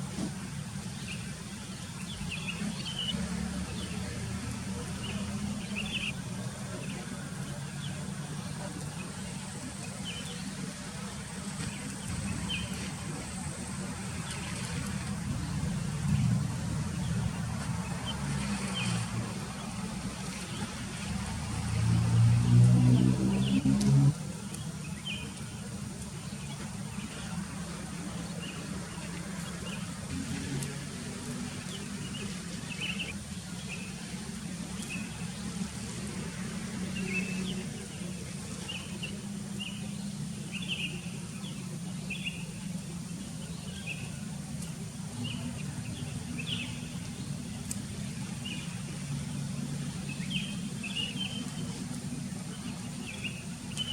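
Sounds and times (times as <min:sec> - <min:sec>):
birds chirping: 0:00.7 - 0:16.2, 0:31.5 - 0:53.9
steady low rumble: 0:04.0 - 0:31.4.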